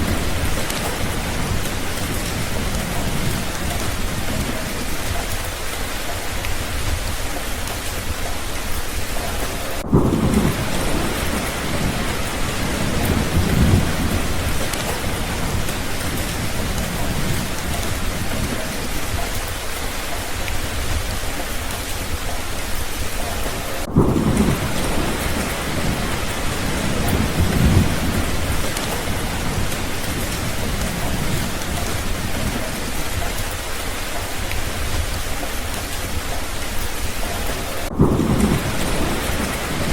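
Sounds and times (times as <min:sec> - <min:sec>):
rain falling: 0:00.0 - 0:39.9
thunder rumbling: 0:00.0 - 0:39.9.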